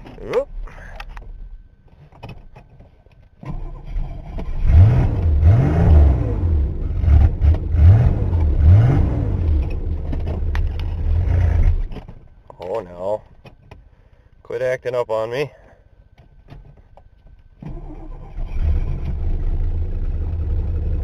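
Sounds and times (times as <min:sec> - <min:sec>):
engine starting and revving: 0:03.4 - 0:12.0, 0:17.6 - 0:21.0.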